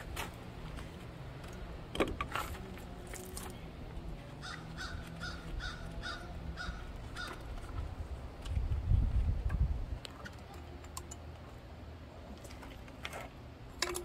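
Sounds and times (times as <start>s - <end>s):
low steady hum: 0.0s - 14.0s
bird calling: 4.3s - 7.7s.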